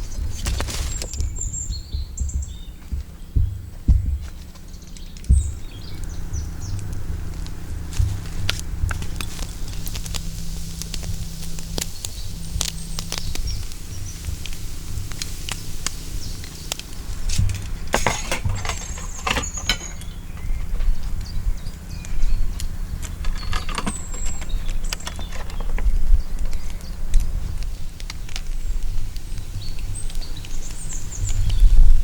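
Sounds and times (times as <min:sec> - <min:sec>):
sharp clicks and crackles: 0:00.0 - 0:32.0
steady low rumble: 0:00.0 - 0:32.0
high bird chirps: 0:04.5 - 0:26.9.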